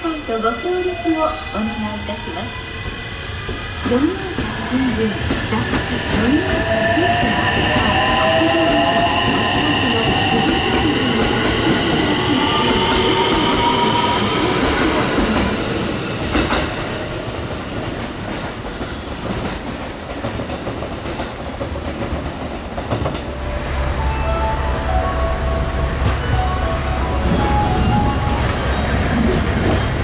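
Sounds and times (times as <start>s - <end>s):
train wheels rushing on rail: 1.6s - 25.0s, 25.6s - 30.0s
high steady tones: 23.3s - 30.0s.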